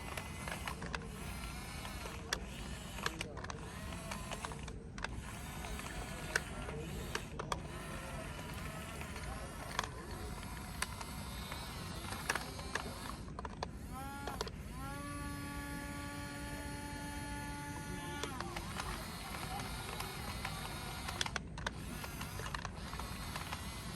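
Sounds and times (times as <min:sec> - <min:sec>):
plastic clicks and knocks: 0:00.0 - 0:14.9
small electric motor whirring: 0:00.0 - 0:23.9.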